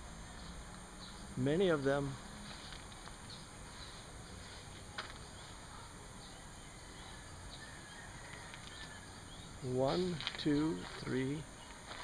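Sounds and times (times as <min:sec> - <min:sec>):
small bird chirps: 0:05.2 - 0:12.0.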